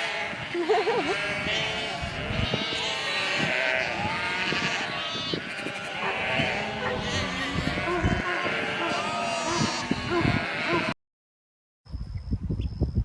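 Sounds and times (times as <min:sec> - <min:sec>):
sheep bleating: 0:00.0 - 0:11.0.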